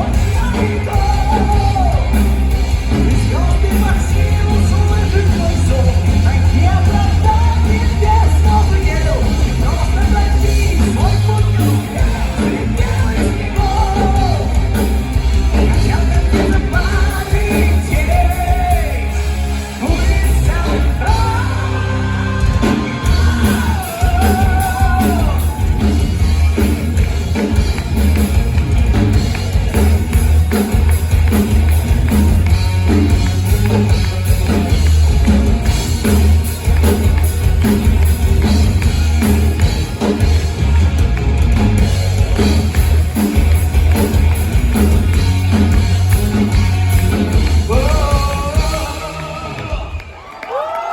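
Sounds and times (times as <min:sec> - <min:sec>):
person singing: 0:00.0 - 0:02.3, 0:02.9 - 0:15.0, 0:15.6 - 0:26.1, 0:47.3 - 0:50.0
heavy metal band playing: 0:00.0 - 0:50.5.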